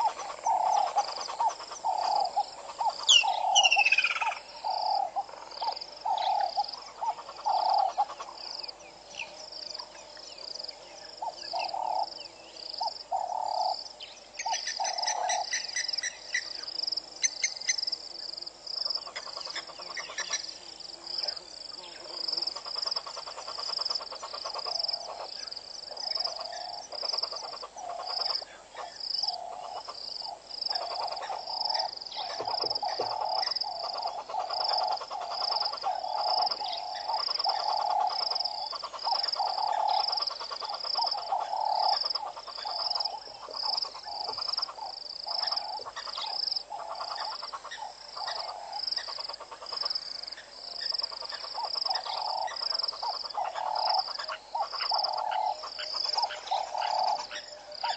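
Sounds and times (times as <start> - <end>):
frogs croaking: 0.0 - 57.9
high-pitched frog call: 26.0 - 57.9.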